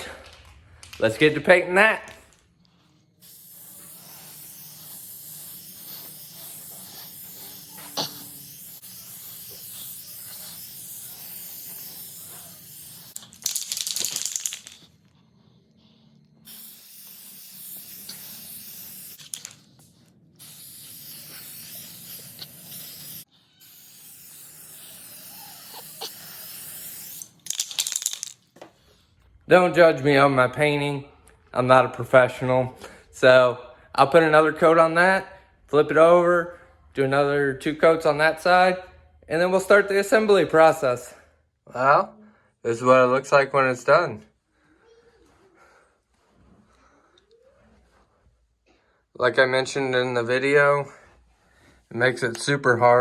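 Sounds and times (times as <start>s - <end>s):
spray paint hissing: 2.8s - 14.9s, 16.4s - 28.4s.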